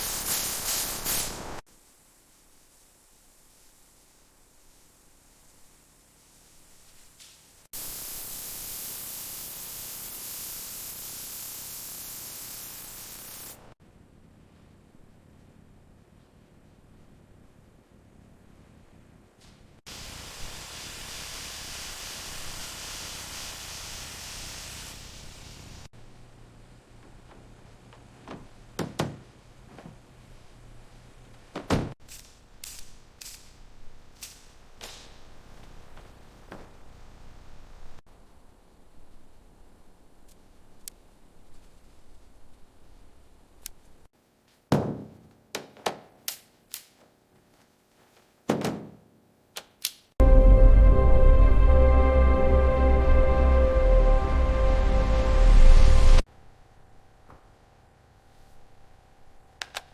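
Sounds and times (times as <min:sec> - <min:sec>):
hiss of rushing air: 0:00.0 - 0:13.8, 0:19.9 - 0:25.9, 0:51.5 - 0:56.3
sharp knocks and thuds: 0:28.2 - 0:30.0, 0:31.5 - 0:32.0, 0:44.7 - 0:46.2, 0:48.5 - 0:49.1.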